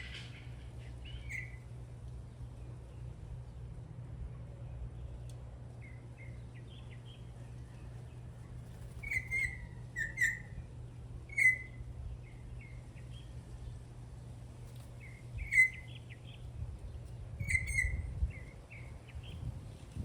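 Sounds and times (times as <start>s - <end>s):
bird calling in sharp bursts: 0.0s - 1.7s, 9.0s - 10.6s, 11.3s - 11.8s
steady low hum: 0.0s - 20.0s.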